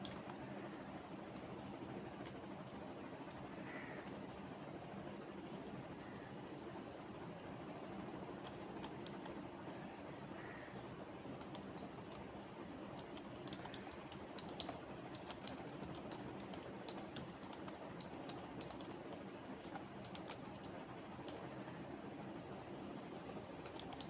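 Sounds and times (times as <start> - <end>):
computer keyboard typing: 0.0 - 0.4, 8.3 - 9.4, 11.3 - 21.5, 23.6 - 24.0
low background noise: 0.0 - 24.0.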